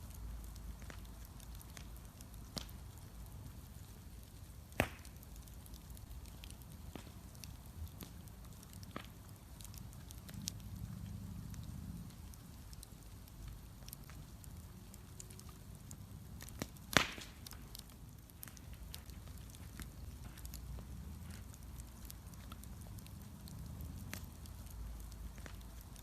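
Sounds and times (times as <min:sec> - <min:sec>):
bonfire rumbling: 0:00.0 - 0:26.0
fire crackling: 0:00.0 - 0:26.0
loud sharp pop: 0:04.8 - 0:05.1, 0:16.9 - 0:17.4.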